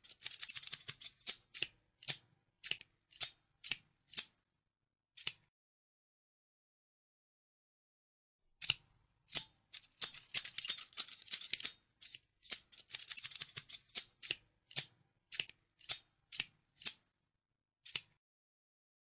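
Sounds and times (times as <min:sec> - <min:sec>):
scissors snipping: 0:00.0 - 0:04.4, 0:05.2 - 0:05.5, 0:08.6 - 0:17.0, 0:17.8 - 0:18.2.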